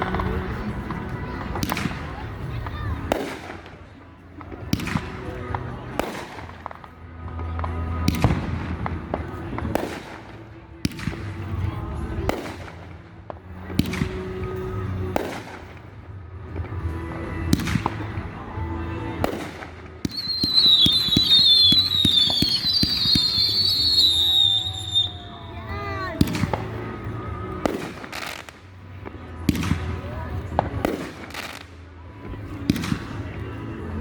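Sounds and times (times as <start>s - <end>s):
fireworks crackling: 0.0s - 33.9s
music: 0.0s - 34.0s
firework whistles gliding downward: 20.1s - 25.4s.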